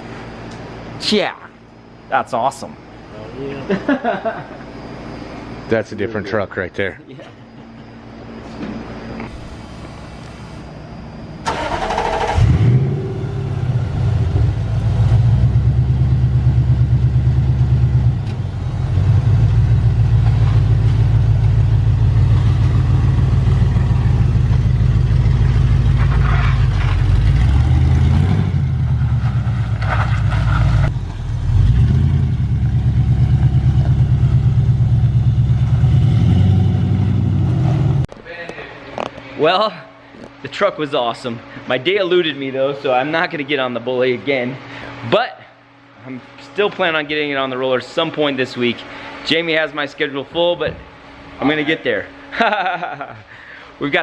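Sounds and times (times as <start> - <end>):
truck engine starting: 11.4 - 16.0, 18.0 - 38.1
truck engine running loud: 11.5 - 38.1.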